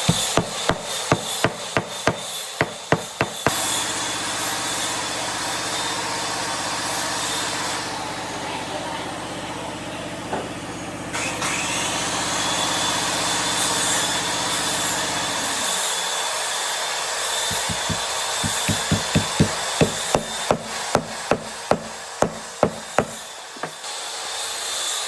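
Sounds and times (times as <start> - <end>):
sharp knocks on wood: 0.0 - 3.6, 17.5 - 23.8.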